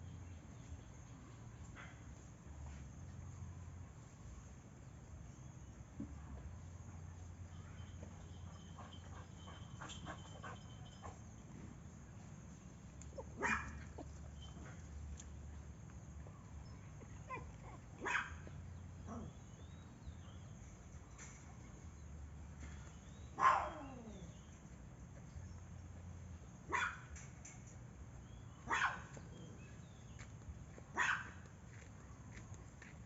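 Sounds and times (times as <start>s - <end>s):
dog barking: 13.2s - 14.1s, 17.3s - 18.5s, 23.4s - 24.1s, 26.7s - 27.1s, 28.6s - 29.2s, 31.0s - 31.4s.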